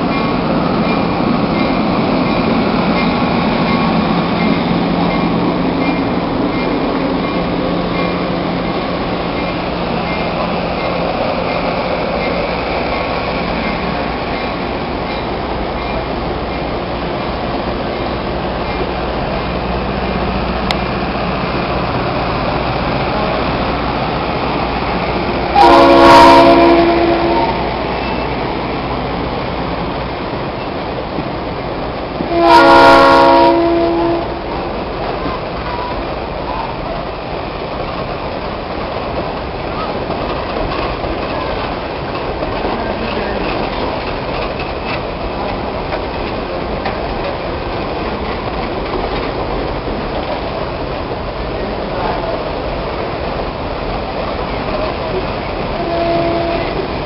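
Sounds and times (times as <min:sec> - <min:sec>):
train cars rumbling past: 0:00.0 - 0:57.0
train horn blasts: 0:25.5 - 0:27.7, 0:32.3 - 0:34.4, 0:55.8 - 0:56.8.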